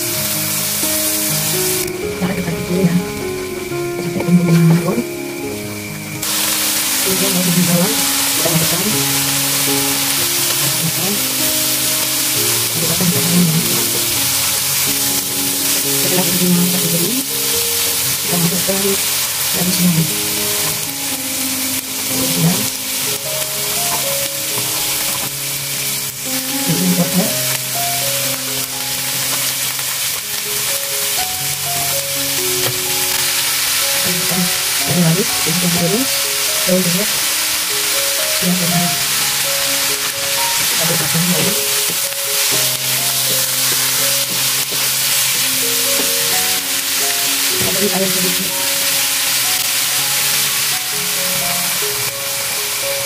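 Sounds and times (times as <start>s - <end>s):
background music: 0.0s - 53.0s
food sizzling in oil: 0.0s - 53.0s
wooden spatula scraping a wok: 38.4s - 52.1s.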